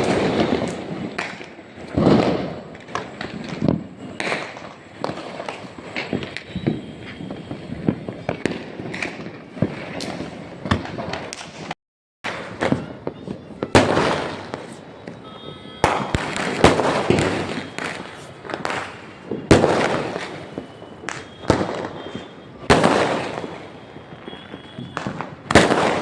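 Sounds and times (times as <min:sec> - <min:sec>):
firecrackers cracking and banging: 0:00.0 - 0:26.0
heavy firework booms: 0:01.9 - 0:03.9, 0:15.8 - 0:26.0.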